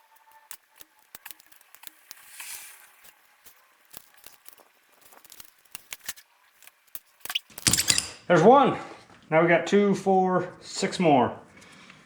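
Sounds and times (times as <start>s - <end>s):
metallic clicks and scrapes: 0.4s - 8.2s.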